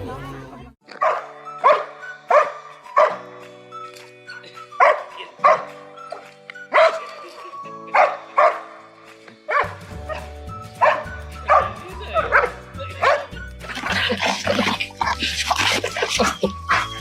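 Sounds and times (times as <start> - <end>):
dog barking: 0.9 - 3.2, 4.8 - 5.7, 6.7 - 7.1, 7.9 - 8.8, 9.5 - 17.0.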